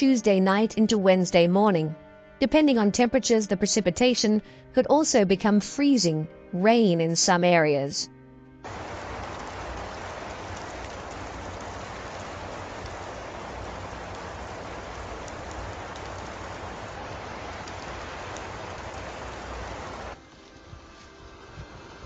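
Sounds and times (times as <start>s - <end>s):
steady rain falling: 8.6s - 22.0s
faint ticks: 8.7s - 21.1s.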